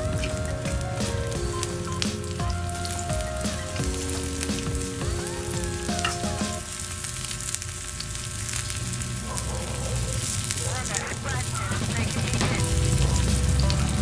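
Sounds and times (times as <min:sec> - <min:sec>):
simple background tune: 0:00.0 - 0:06.7, 0:12.4 - 0:14.0
onions sizzling in a pan: 0:00.0 - 0:14.0.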